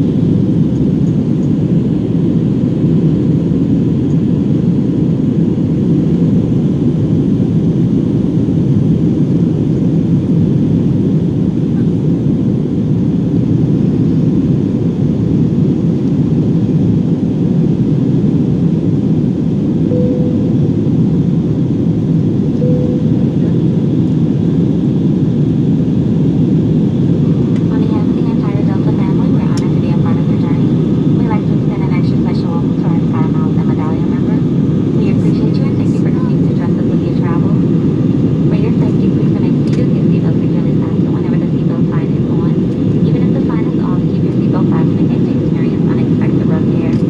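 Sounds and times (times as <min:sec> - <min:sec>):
jet engines rumbling in cabin: 0:00.0 - 0:47.0
faint brief tones: 0:19.9 - 0:20.8.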